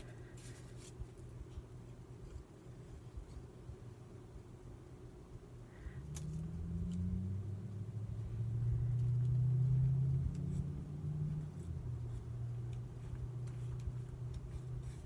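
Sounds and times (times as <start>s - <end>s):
passing vehicle engine rumble: 5.9s - 14.3s.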